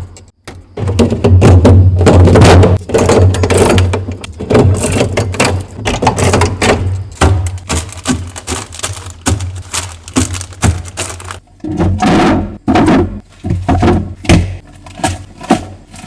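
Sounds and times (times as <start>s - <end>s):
snack packages clicking and knocking: 4.8s - 11.4s
fridge hum: 5.0s - 12.0s.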